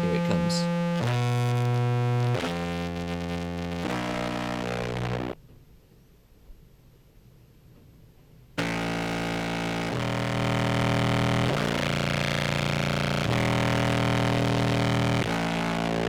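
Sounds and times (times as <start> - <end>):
distorted low clarinet notes: 8.6 - 16.0.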